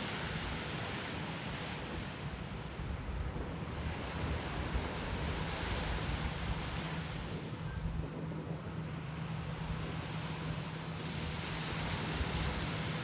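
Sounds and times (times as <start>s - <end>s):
wind buffeting microphone: 0.1s - 13.0s
sea surf washing onto beach: 8.9s - 13.0s.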